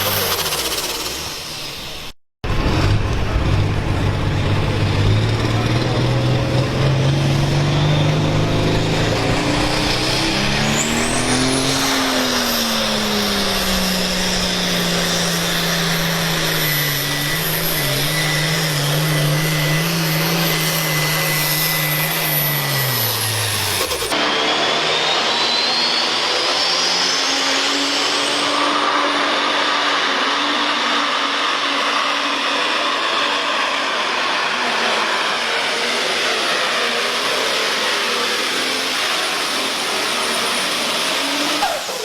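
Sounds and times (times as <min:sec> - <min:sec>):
engine with high whine: 0:00.0 - 0:42.0
tractor engine running hard: 0:00.0 - 0:42.0.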